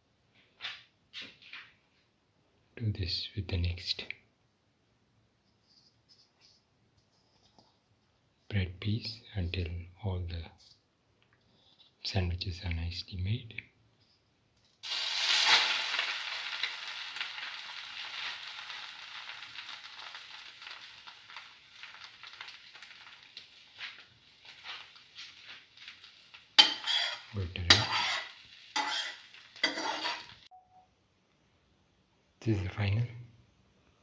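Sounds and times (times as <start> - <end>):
bread sizzling in a frying pan: 14.6 - 30.5
knocks and scrapes against pan: 26.6 - 30.3.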